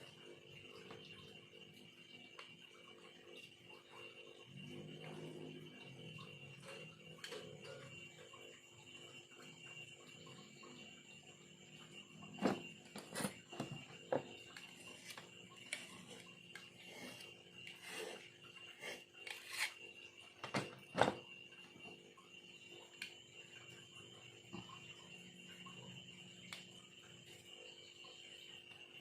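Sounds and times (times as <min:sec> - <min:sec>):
knife scraping bamboo: 0:19.3 - 0:19.8.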